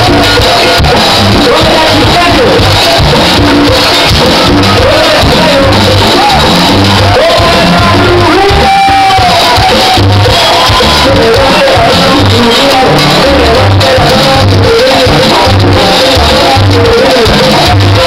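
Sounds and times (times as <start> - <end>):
latin dance band playing: 0.0 - 18.0
person singing: 0.0 - 18.0
person shouting calls: 4.7 - 11.0.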